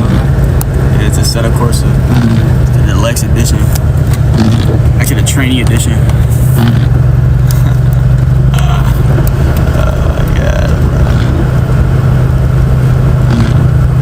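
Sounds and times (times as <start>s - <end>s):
car engine and road noise: 0.0s - 14.0s
faint voices: 7.5s - 11.6s.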